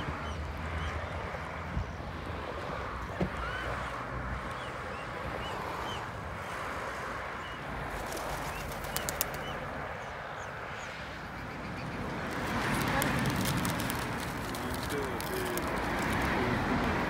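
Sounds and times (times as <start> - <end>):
birds chirping: 7.4 - 16.3.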